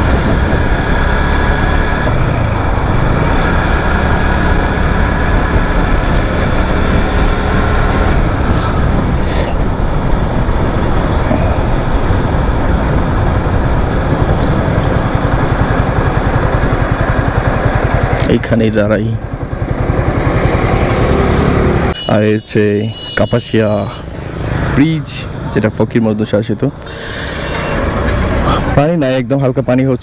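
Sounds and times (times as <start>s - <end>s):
wind rumble on microphone: 0.0s - 18.1s
motorcycle engine running: 0.0s - 22.0s.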